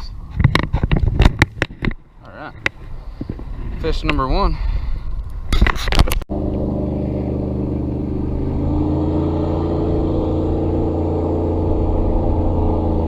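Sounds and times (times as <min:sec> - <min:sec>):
motorboat engine running: 0:06.3 - 0:13.0.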